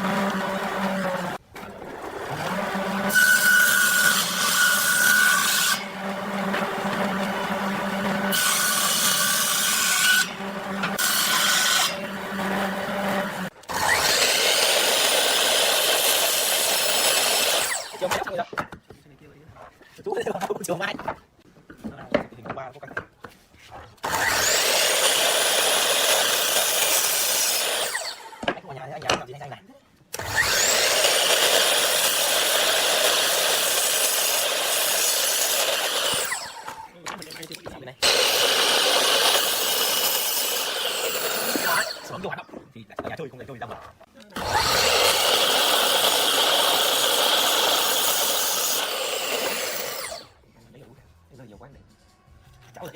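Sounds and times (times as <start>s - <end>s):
power tool rasping wood: 0.0s - 18.2s, 24.0s - 28.5s, 30.2s - 36.9s, 38.0s - 42.2s, 44.4s - 50.3s
power tool motor hum: 30.2s - 36.8s, 38.0s - 42.1s, 44.4s - 50.3s.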